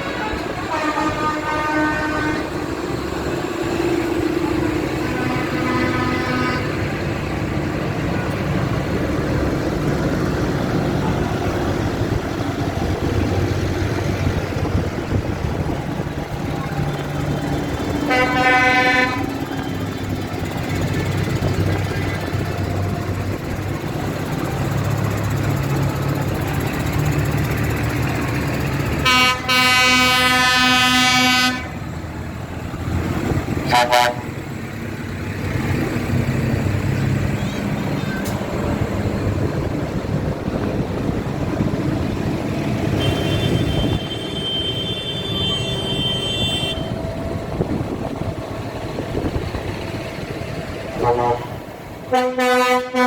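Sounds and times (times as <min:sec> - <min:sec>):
higher-pitched horn: 0:00.0 - 0:02.6, 0:05.0 - 0:06.9, 0:18.1 - 0:19.5, 0:29.0 - 0:31.8, 0:33.6 - 0:34.4, 0:51.0 - 0:53.0
loud horn blast: 0:00.0 - 0:02.6, 0:05.0 - 0:07.0, 0:18.0 - 0:19.7, 0:28.9 - 0:31.8, 0:33.6 - 0:34.4, 0:42.9 - 0:47.0, 0:51.0 - 0:53.0
vehicle engines rumbling: 0:00.0 - 0:53.0.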